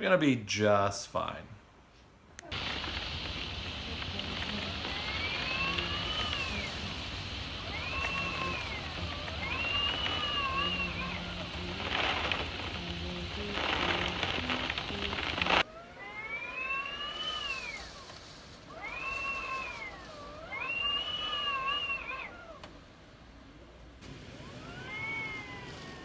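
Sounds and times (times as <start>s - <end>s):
rushing noise: 2.5s - 15.7s
cat meowing: 3.8s - 22.7s, 24.4s - 26.0s.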